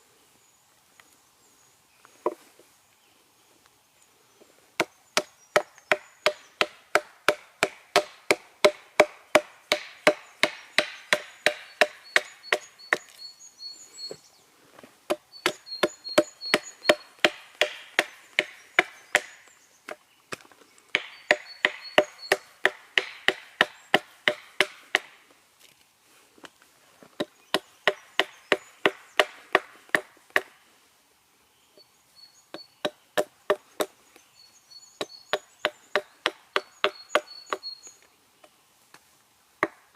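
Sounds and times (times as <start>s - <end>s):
faint birds chirping: 0.0s - 39.9s
hatchet chopping wood: 4.8s - 13.1s, 15.1s - 20.0s, 20.9s - 25.2s, 27.2s - 30.5s, 32.5s - 33.9s, 35.0s - 37.6s, 39.6s - 39.9s.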